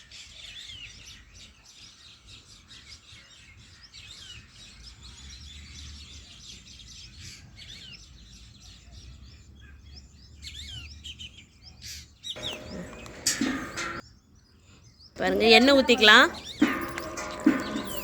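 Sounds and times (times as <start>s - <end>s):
small birds chirping: 7.7s - 18.0s.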